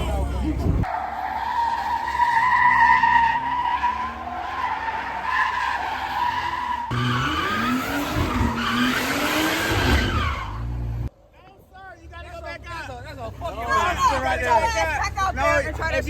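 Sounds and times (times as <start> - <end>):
car engine revving: 0.0 - 11.1
car tires squealing: 0.8 - 11.0.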